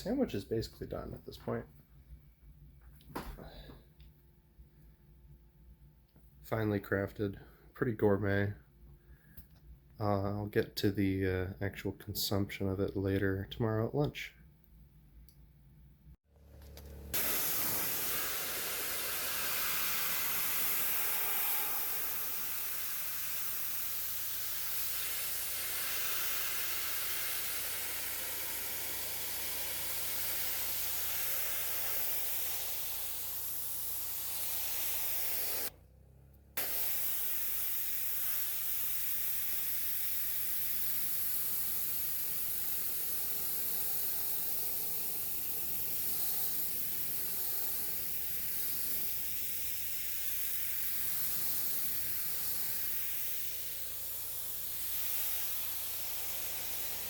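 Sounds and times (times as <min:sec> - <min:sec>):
pressure washer water jet hissing: 0:16.9 - 0:35.7, 0:36.6 - 0:57.0.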